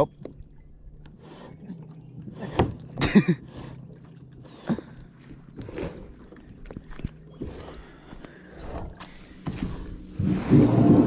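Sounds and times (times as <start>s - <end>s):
kayak knocks and scrapes: 9.2s - 11.0s.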